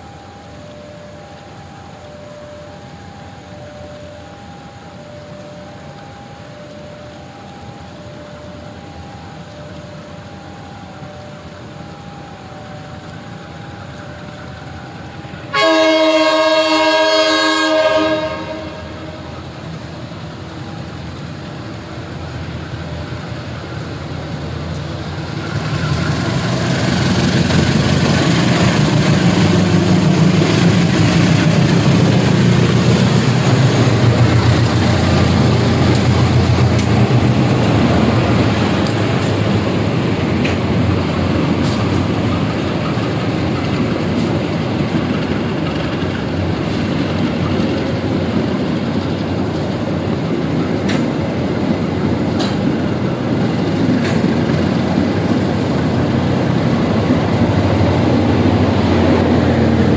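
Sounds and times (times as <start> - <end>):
two-tone warning signal: 0.0 - 21.1
train rumbling engine and wheels: 0.0 - 59.9
locomotive horn blast: 15.5 - 19.6.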